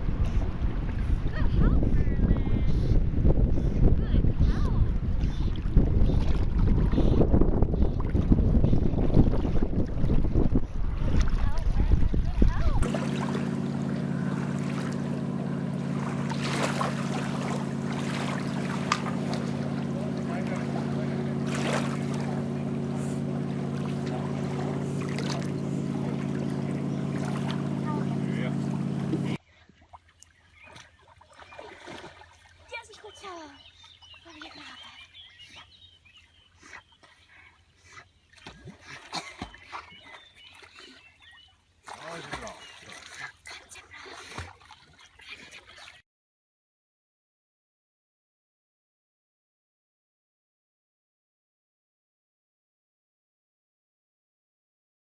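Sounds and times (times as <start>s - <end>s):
motor hum: 0.0s - 29.4s.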